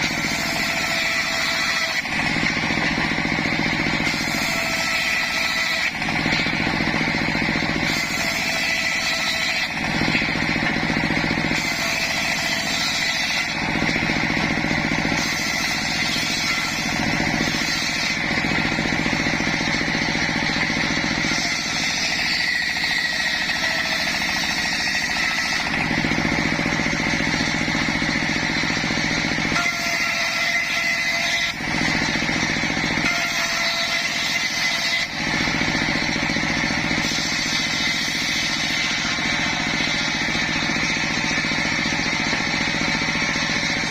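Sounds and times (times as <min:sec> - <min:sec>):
sawmill sawing log: 0:00.0 - 0:43.9.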